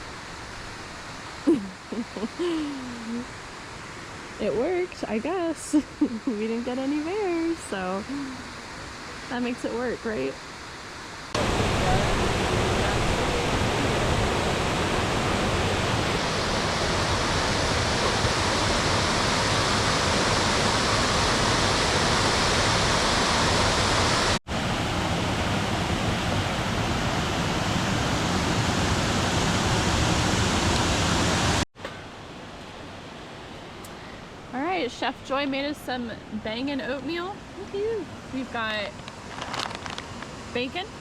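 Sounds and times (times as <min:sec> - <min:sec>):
waterfall roaring: 0:00.0 - 0:41.0.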